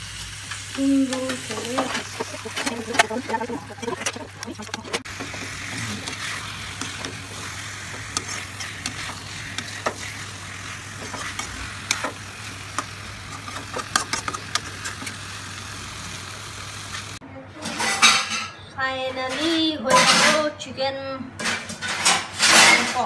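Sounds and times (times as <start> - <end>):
chicken sizzling in a pan: 0.0 - 17.2.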